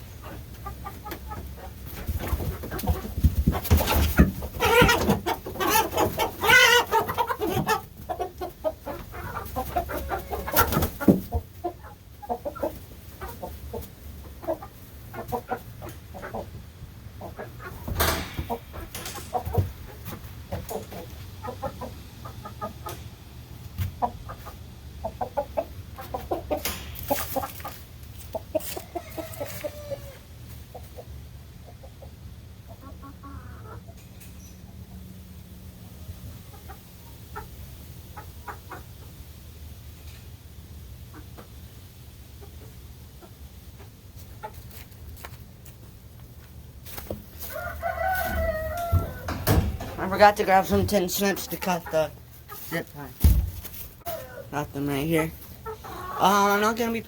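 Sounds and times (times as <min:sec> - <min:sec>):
chickens clucking and squawking: 0:00.0 - 0:57.0
sharp knocks and rattles: 0:17.8 - 0:21.0, 0:26.5 - 0:28.2, 0:48.9 - 0:51.0.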